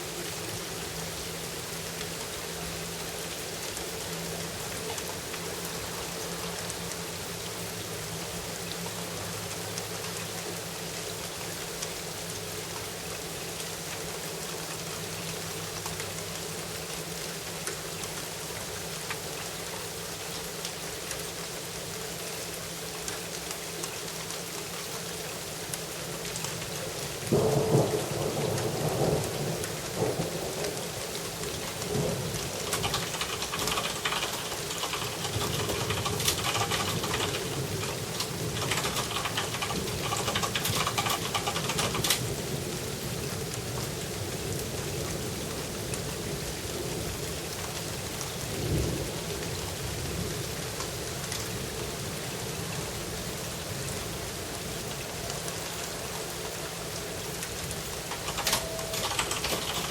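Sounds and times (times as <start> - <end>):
rain falling: 0.0 - 59.9
raindrops striking hard surface: 0.0 - 59.9
thunderclap rumbling: 27.3 - 42.8.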